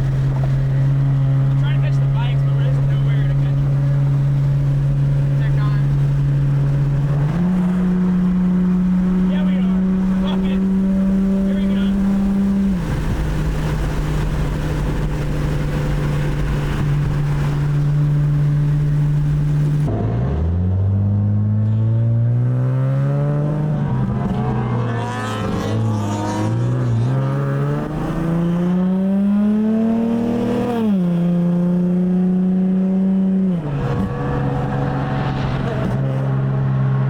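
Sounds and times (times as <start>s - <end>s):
car engine accelerating: 0.0s - 37.0s
rushing wind: 3.7s - 20.0s, 33.2s - 37.0s.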